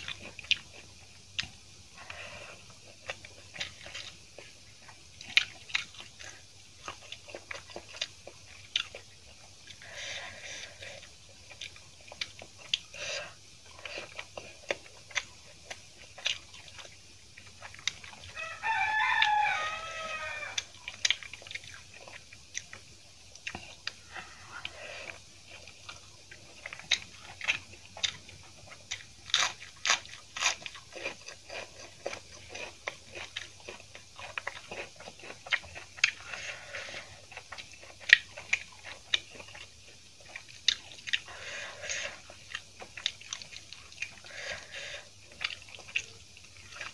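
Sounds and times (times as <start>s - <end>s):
chewing and lip-smacking: 0.0s - 18.4s, 20.6s - 46.9s
rooster crowing: 18.3s - 20.7s.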